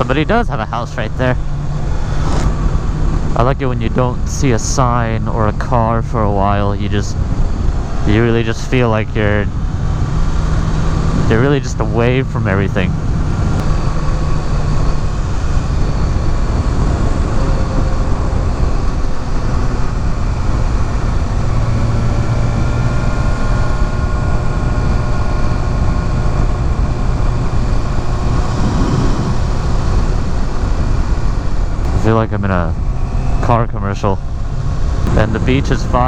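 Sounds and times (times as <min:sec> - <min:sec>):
motorcycle engine cruising: 0:00.0 - 0:36.0
wind rushing: 0:01.4 - 0:03.4, 0:25.5 - 0:32.0.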